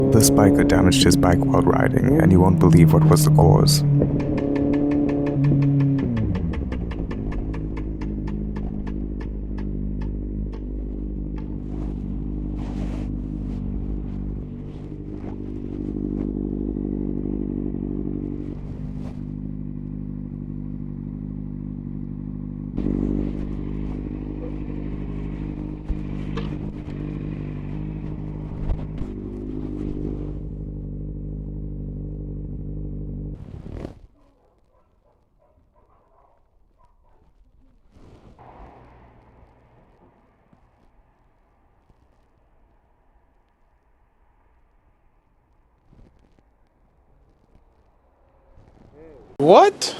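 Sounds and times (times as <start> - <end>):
motorcycle engine running: 0.0 - 33.5.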